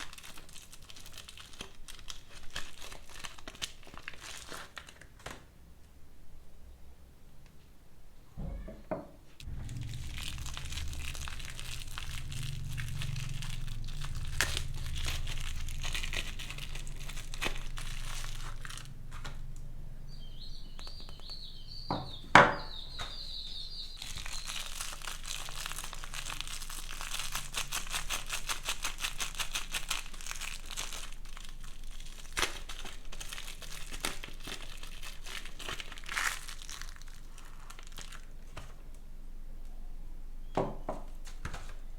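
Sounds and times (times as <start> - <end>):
wrapper crinkling and tearing: 0.0 - 5.5, 9.4 - 19.5, 24.0 - 38.9.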